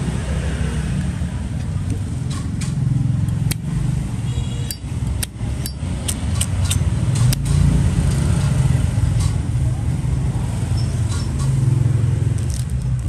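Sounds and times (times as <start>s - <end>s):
road traffic rumble: 0.0s - 13.0s
lighter lid clicking open and shut: 3.3s - 3.7s.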